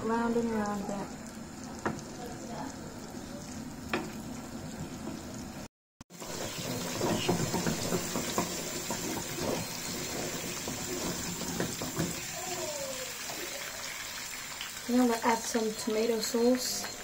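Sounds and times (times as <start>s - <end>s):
meatballs sizzling in oil: 0.0s - 17.0s
wooden spoon knocking on pan: 7.0s - 9.7s, 10.5s - 12.2s.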